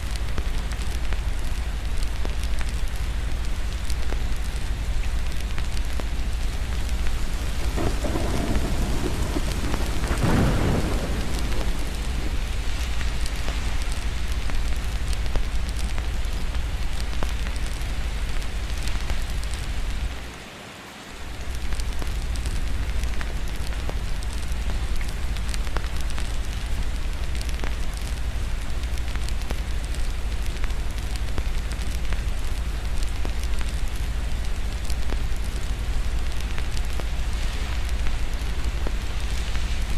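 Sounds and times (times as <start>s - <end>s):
heavy rain: 0.0s - 39.9s
thunder rumbling: 6.4s - 16.3s.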